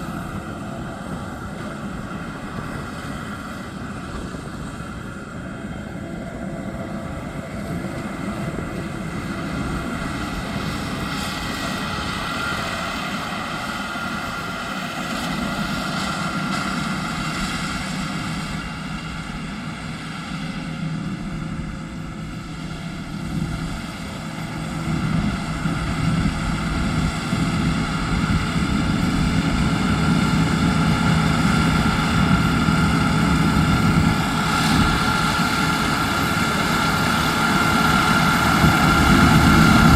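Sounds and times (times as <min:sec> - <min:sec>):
combine harvester engine humming: 0:00.0 - 0:39.9.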